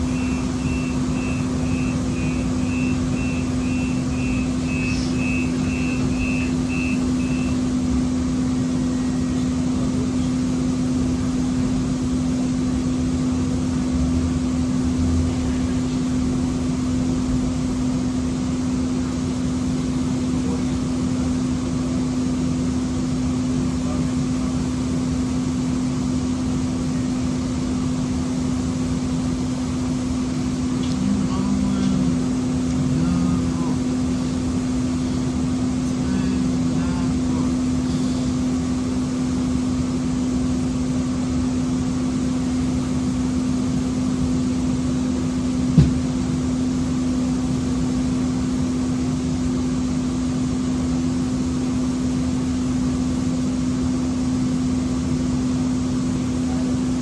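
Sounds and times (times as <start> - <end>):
short high electronic beeps: 0.0 - 7.6
light rail electric hum: 0.0 - 57.0.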